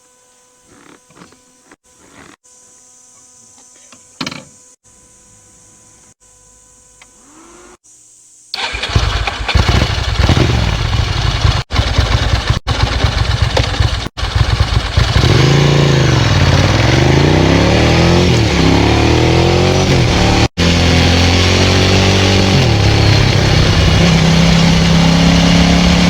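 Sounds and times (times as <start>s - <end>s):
motorcycle engine idling and revving: 8.6s - 26.0s.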